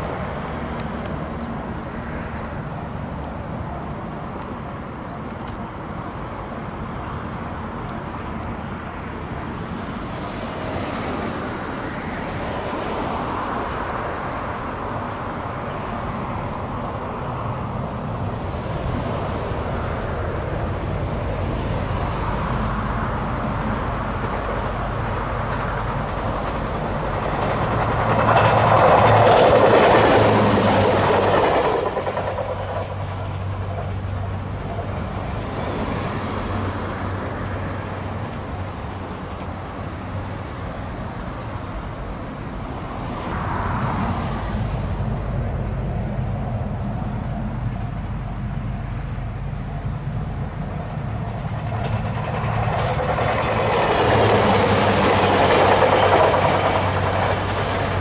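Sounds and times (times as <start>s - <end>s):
diesel train passing: 0.0s - 58.0s
wheels squealing: 27.0s - 34.9s, 51.4s - 58.0s.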